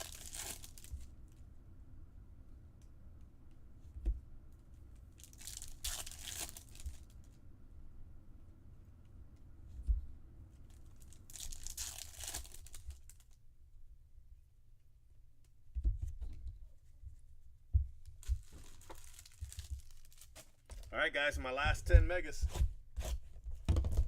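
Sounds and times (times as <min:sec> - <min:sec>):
packaging tearing and crinkling: 0:00.0 - 0:01.1, 0:05.2 - 0:07.2, 0:10.9 - 0:13.4, 0:18.3 - 0:20.8.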